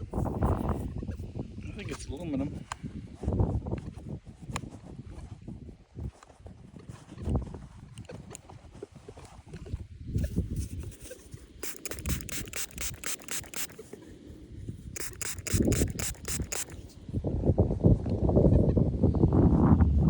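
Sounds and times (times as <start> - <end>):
quick scraping and rubbing strokes: 10.2 - 14.1, 15.0 - 17.0.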